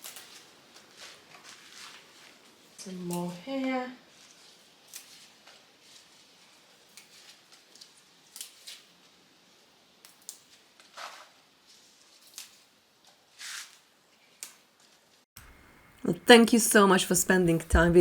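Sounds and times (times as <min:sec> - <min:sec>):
leaves rustling: 0:00.0 - 0:15.2
snips cutting salad greens: 0:04.8 - 0:05.5, 0:06.8 - 0:08.9, 0:10.0 - 0:10.6, 0:12.2 - 0:12.7.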